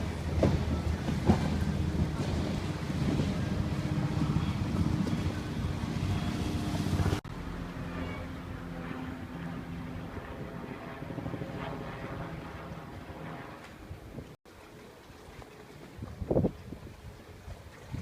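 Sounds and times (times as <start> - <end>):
wind rumbling on microphone: 0.0 - 7.2, 15.1 - 18.0
low engine hum: 0.0 - 14.1.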